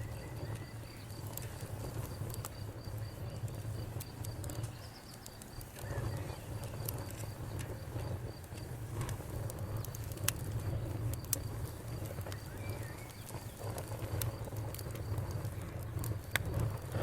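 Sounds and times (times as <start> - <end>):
campfire crackling: 0.0 - 17.0
bird chirp: 4.5 - 6.7, 12.2 - 13.8.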